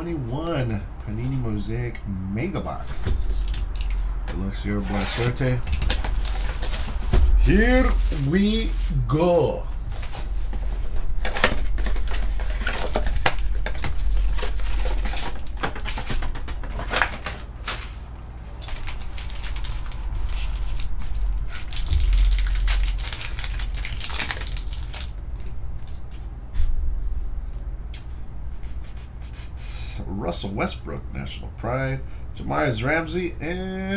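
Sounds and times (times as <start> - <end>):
low hum: 0.0 - 32.4
plastic wrapping crinkling and tearing: 4.9 - 9.1, 9.9 - 25.6.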